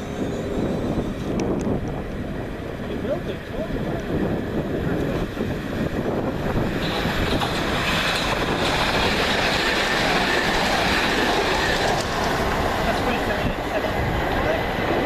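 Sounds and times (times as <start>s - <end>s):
train wheels clattering on rails: 3.4s - 15.0s.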